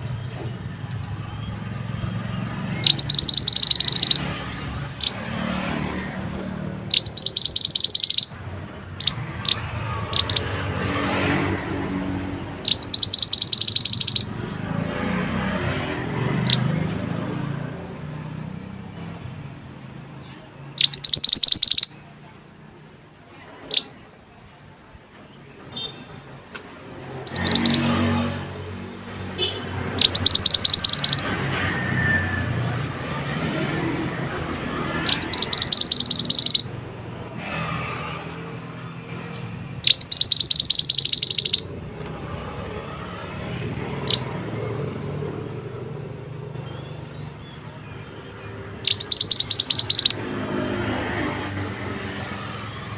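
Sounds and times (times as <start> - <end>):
songbird singing high trills: 2.8 - 4.4, 6.9 - 10.5, 12.6 - 14.4, 20.2 - 22.1, 27.3 - 28.0, 30.0 - 31.3, 35.0 - 36.7, 39.8 - 41.8, 44.0 - 44.3, 48.8 - 50.2.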